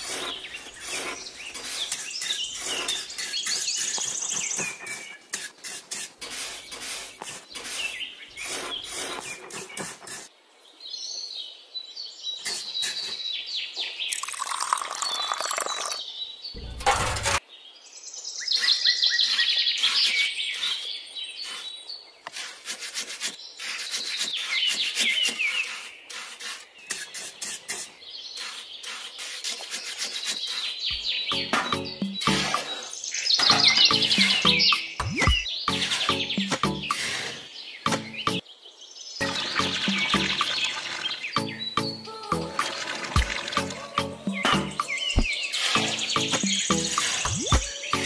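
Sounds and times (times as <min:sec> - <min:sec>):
spatula scraping soil: 0:00.0 - 0:10.3, 0:12.4 - 0:13.3, 0:18.5 - 0:38.4, 0:42.6 - 0:48.0
small birds chirping: 0:00.0 - 0:16.8, 0:17.4 - 0:48.0.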